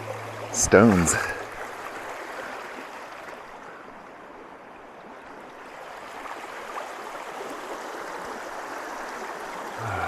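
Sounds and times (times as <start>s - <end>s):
river rushing over rocks: 0.0s - 3.6s.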